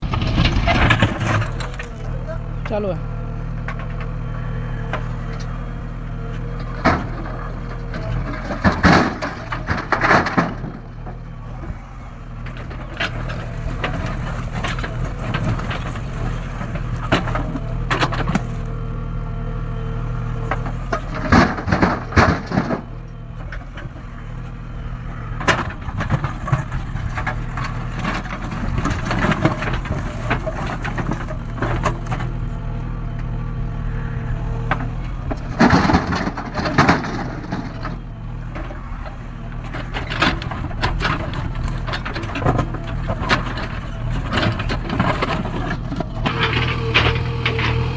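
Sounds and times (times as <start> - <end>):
diesel engine running: 0.0 - 47.9
bucket and arm clanking: 6.4 - 18.6, 20.5 - 32.5, 34.7 - 47.9.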